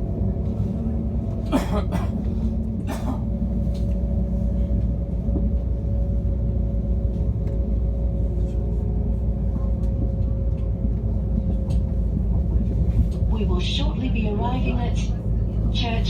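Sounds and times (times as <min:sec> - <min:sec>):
train carriage rumble: 0:00.0 - 0:16.0.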